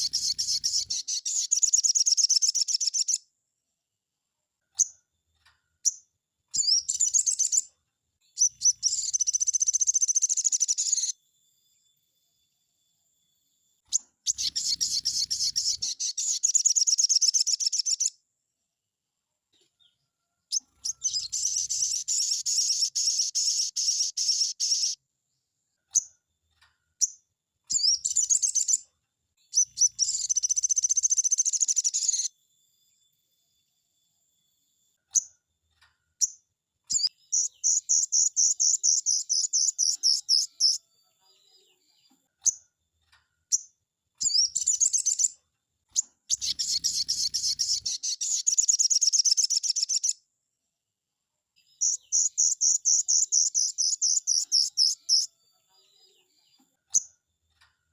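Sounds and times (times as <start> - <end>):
bird chips: 0.0 - 3.2, 13.9 - 18.1, 20.5 - 25.0, 46.0 - 50.2
bird trilling: 0.0 - 3.2, 14.3 - 18.1, 20.5 - 25.0, 44.2 - 45.4, 46.3 - 50.2, 51.8 - 55.3.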